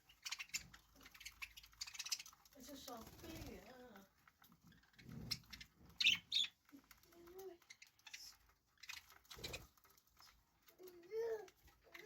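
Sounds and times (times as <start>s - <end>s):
budgerigars chirping: 0.0s - 3.6s, 4.6s - 6.6s, 7.6s - 9.8s.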